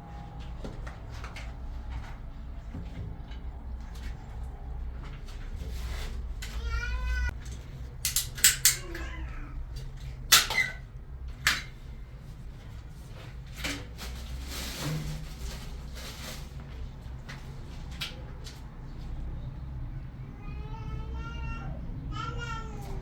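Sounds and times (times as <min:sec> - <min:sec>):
cat meowing: 0:08.8 - 0:09.6.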